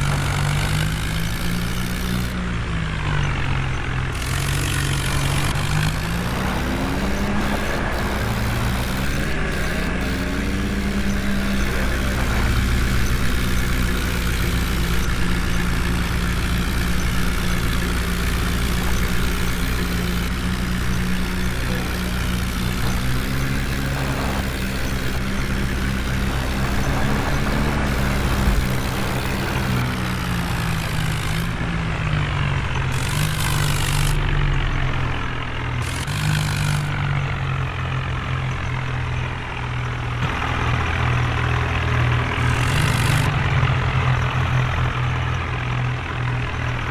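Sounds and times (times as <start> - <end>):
heavy diesel engine running hard: 0.0 - 46.9
deep rumble: 5.1 - 35.9.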